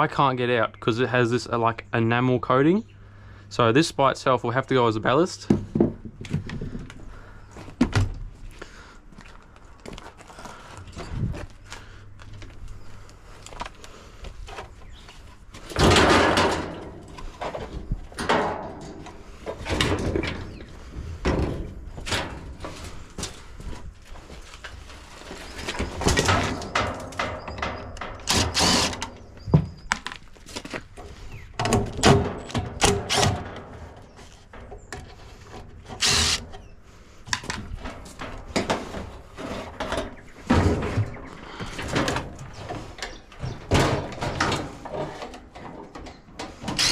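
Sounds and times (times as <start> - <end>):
knocks and clattering of parts: 5.1 - 8.4, 13.4 - 46.9
metal scraping and clanking: 15.6 - 23.7, 24.8 - 29.4, 31.0 - 46.9.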